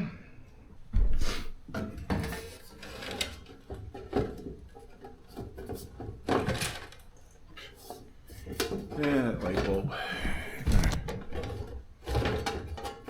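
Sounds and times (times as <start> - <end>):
plastic cover clicking and scraping: 1.8 - 9.8, 10.6 - 13.0.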